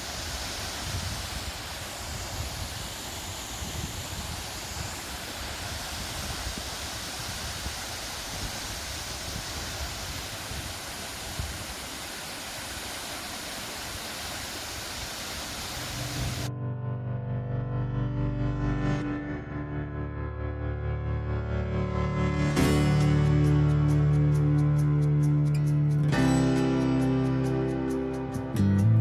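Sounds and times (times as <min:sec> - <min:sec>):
background music: 0:21.2 - 0:29.0.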